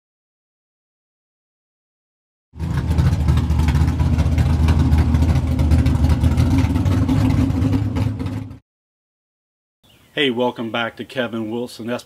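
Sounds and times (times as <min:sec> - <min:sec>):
car engine running: 0:02.6 - 0:08.6.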